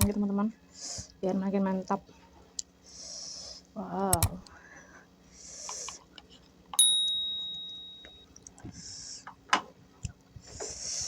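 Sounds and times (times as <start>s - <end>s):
hissing breaths: 2.8s - 3.8s, 4.4s - 6.1s, 8.6s - 9.4s, 10.3s - 11.0s
bright metallic ding: 6.8s - 8.2s.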